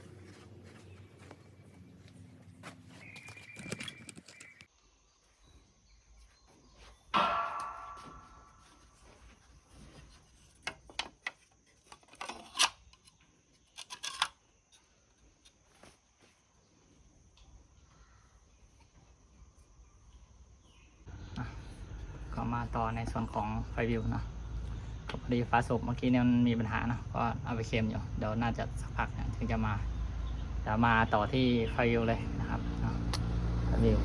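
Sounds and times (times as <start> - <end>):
loud ringing metallic clang: 7.1 - 9.0
metallic clicks and clanks: 10.7 - 14.4.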